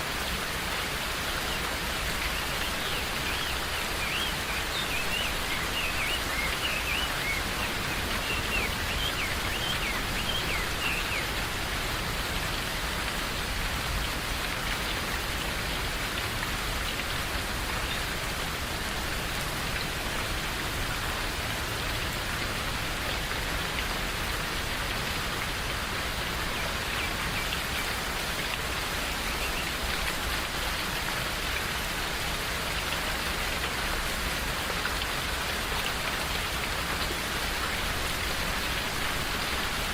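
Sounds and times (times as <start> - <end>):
rain falling in forest: 0.0 - 39.9
birds chirping: 2.3 - 11.4.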